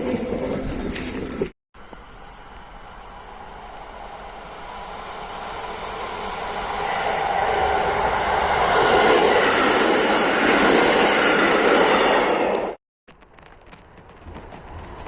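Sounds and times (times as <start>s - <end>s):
train running past: 1.8s - 12.8s.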